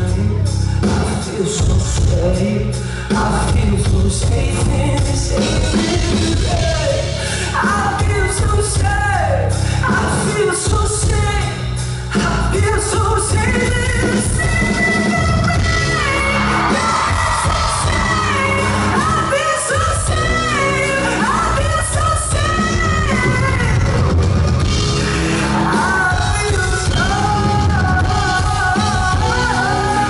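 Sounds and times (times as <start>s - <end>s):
live pop-rock band: 0.0s - 30.0s
person singing: 0.0s - 30.0s.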